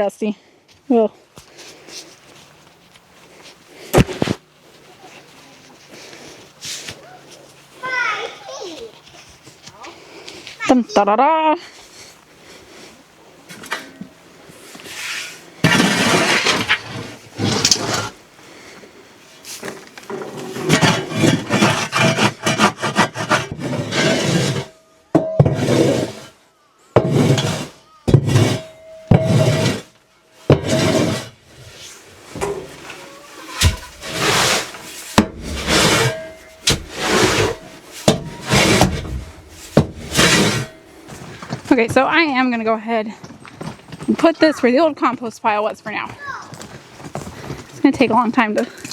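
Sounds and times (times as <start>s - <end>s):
litter scraped out of coop: 14.8s - 18.2s, 19.5s - 24.7s, 25.5s - 26.4s, 27.0s - 29.9s, 30.5s - 40.8s.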